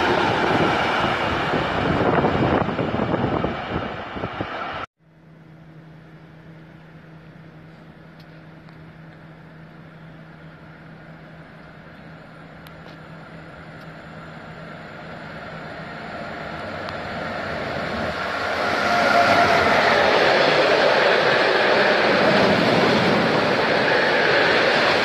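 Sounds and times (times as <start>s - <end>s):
freight train rumble: 0.0s - 4.9s, 5.5s - 25.0s
steady low hum: 5.0s - 18.3s.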